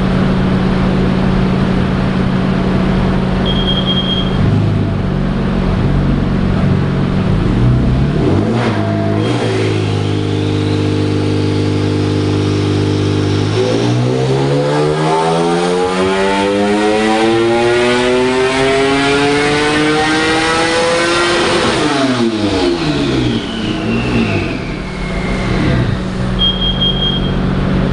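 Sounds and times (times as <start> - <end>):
engine revving on dyno: 0.0 - 27.9
turbo whistle: 3.4 - 4.4, 23.2 - 27.4.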